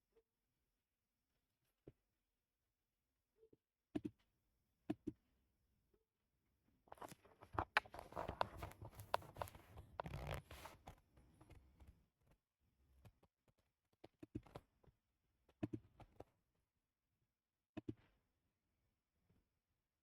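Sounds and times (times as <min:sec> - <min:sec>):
rustling and scraping: 0:06.9 - 0:10.9.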